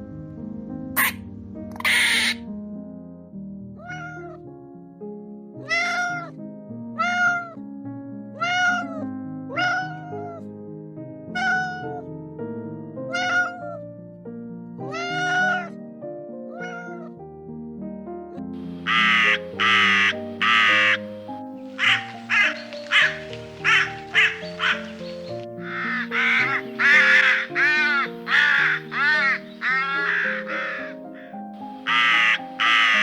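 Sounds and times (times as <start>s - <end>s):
background music: 0.0s - 2.6s, 18.6s - 33.0s
cat meowing: 3.8s - 4.4s, 16.6s - 17.1s, 18.9s - 31.0s.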